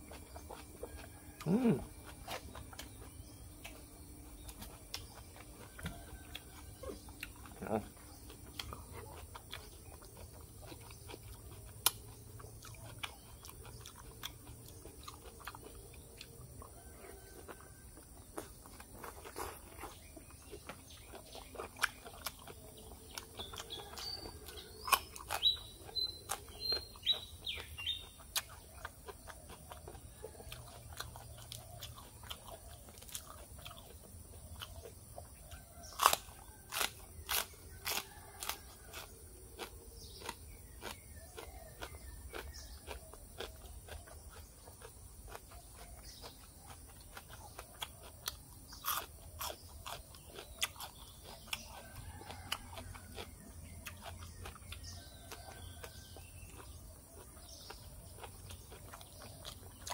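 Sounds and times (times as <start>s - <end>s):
bird chirping: 0.0s - 59.9s
crunching and chewing: 0.0s - 59.9s.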